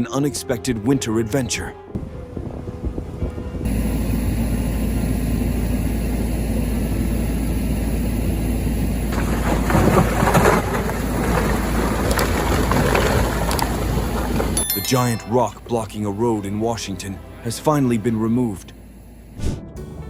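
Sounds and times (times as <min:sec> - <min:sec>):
wind noise on microphone: 0:01.9 - 0:05.6
vehicle low rumble: 0:02.0 - 0:20.0.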